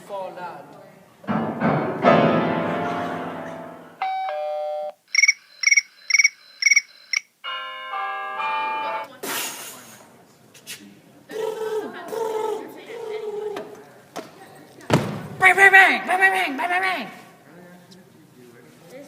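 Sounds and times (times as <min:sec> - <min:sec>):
ding-dong chime: 0:04.0 - 0:05.0
electronic chord chime: 0:07.4 - 0:09.0.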